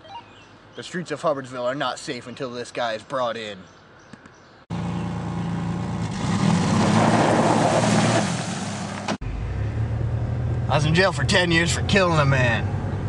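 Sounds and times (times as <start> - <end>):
vehicle engine running: 4.7 - 12.0.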